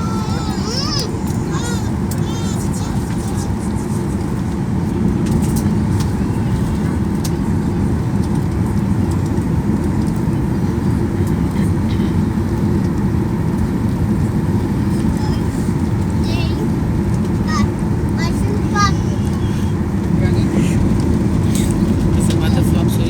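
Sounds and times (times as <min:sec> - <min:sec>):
jet engines rumbling in cabin: 0:00.0 - 0:23.0
light cabin rattles: 0:15.0 - 0:23.0.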